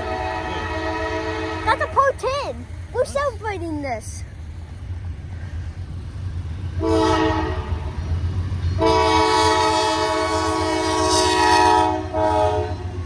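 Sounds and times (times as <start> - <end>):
locomotive air horn blasts: 0.0 - 2.0, 6.8 - 7.8, 8.8 - 13.0
train rumbling: 0.0 - 13.0.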